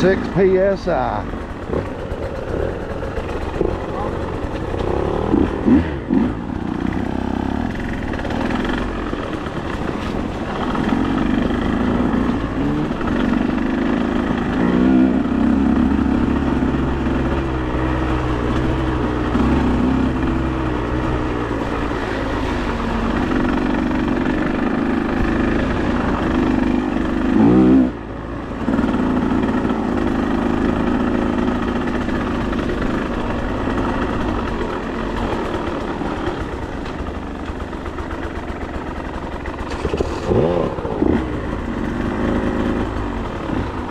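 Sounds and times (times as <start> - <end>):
off-road vehicle engine revving: 0.0 - 43.9.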